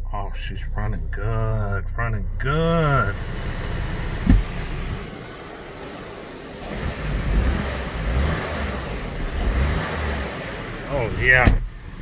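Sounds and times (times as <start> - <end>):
car engine idling: 0.0 - 12.0
thump: 4.2 - 5.0, 11.4 - 11.8.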